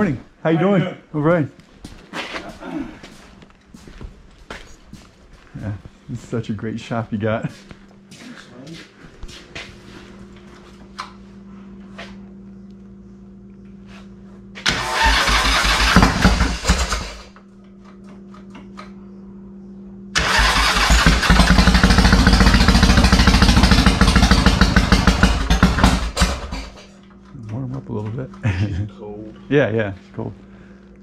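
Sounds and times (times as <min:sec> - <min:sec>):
motorcycle engine starting: 0:14.6 - 0:17.4, 0:20.2 - 0:26.9
loud pulsing motorcycle exhaust: 0:14.8 - 0:17.2, 0:20.2 - 0:26.8.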